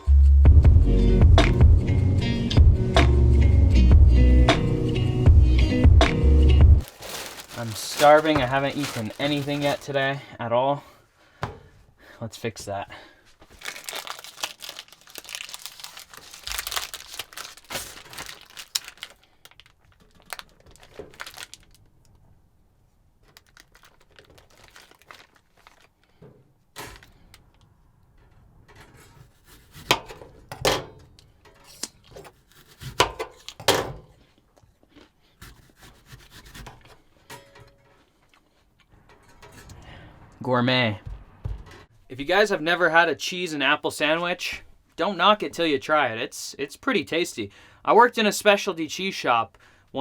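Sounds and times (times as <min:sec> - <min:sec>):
food packaging rustling and tearing: 0:06.8 - 0:10.2, 0:13.4 - 0:22.0, 0:23.2 - 0:26.2, 0:31.7 - 0:33.6.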